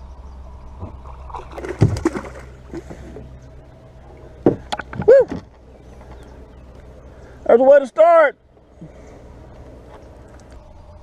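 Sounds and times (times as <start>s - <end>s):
water sloshing: 0.7s - 6.3s
water splashes: 0.8s - 3.4s
thump against boat hull: 4.4s - 5.6s.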